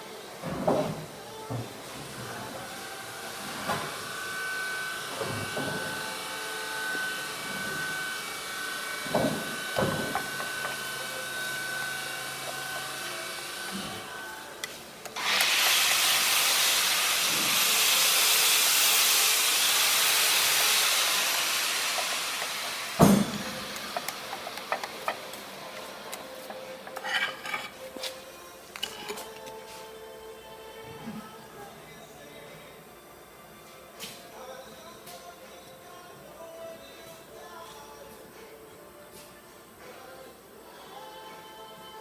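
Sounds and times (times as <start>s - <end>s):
loud steady hiss: 2.8s - 26.8s.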